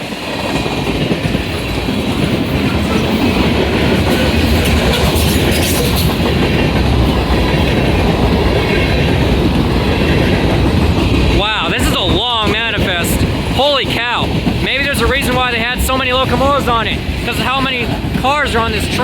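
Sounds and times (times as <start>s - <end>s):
freight train rolling past: 0.0s - 19.0s.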